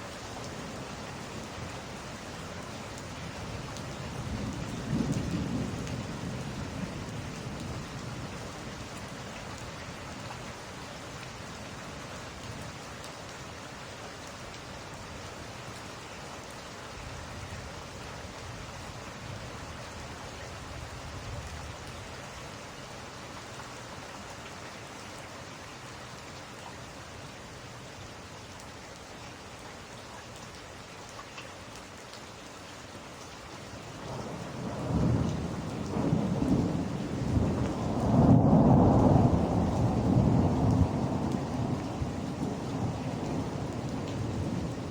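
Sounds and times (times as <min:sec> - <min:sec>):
steady rain falling: 0:00.0 - 0:44.9
low rumble of thunder: 0:03.5 - 0:09.4, 0:33.9 - 0:44.9.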